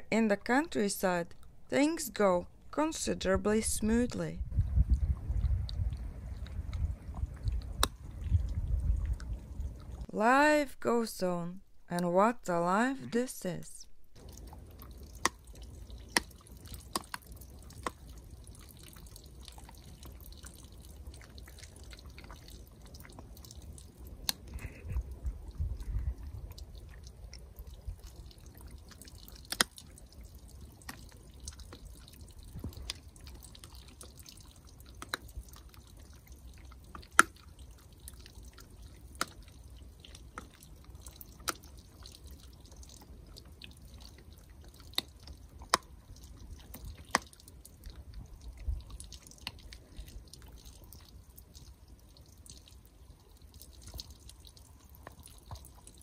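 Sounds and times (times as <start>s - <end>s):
low rumble: 4.3s - 10.1s
dog gnawing on a bone: 4.6s - 10.0s, 14.2s - 56.0s
bone cracking: 14.8s - 23.6s, 28.0s - 51.1s.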